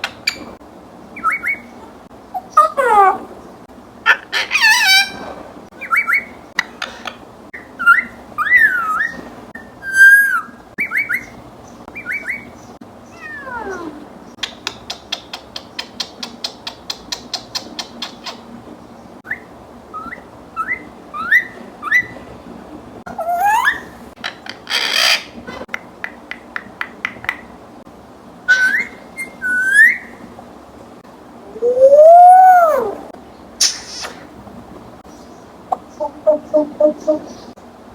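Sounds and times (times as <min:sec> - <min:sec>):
parrot whistling: 0:36.0 - 0:37.3.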